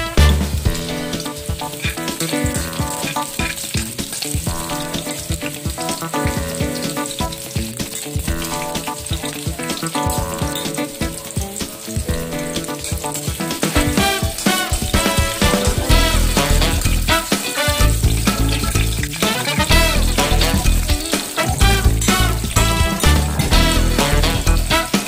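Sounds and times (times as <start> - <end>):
background music: 0.0 - 25.0
garlic and onion sizzling in oil: 0.0 - 25.0.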